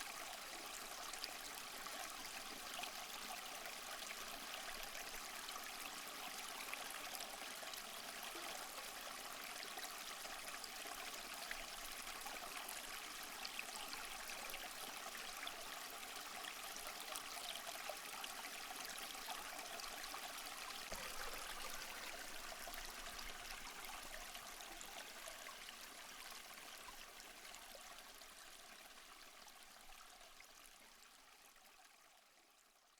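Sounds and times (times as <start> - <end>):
running water splashing: 20.9 - 24.1.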